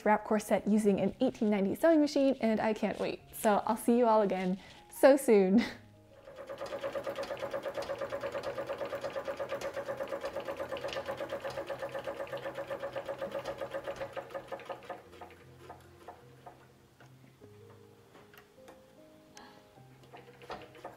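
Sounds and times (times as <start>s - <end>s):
sewing machine stitching: 6.2s - 16.6s, 20.0s - 20.9s.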